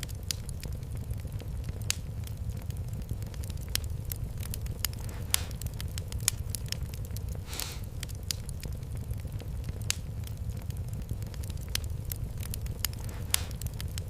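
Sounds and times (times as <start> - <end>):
fireplace fire crackling: 0.0 - 14.0
low rumble of flames: 0.0 - 14.0
sharp pops: 4.8 - 5.7, 12.8 - 14.0
brief hiss: 7.4 - 7.9.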